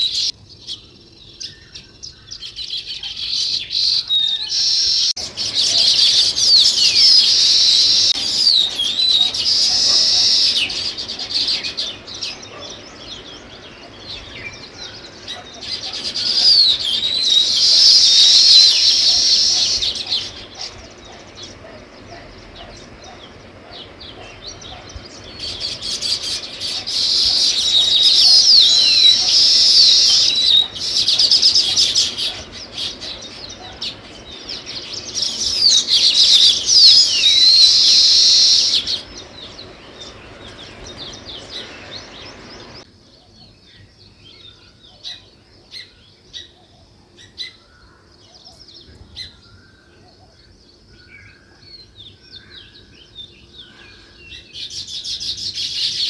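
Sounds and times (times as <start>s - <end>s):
sparrows chirping: 0.0s - 56.0s.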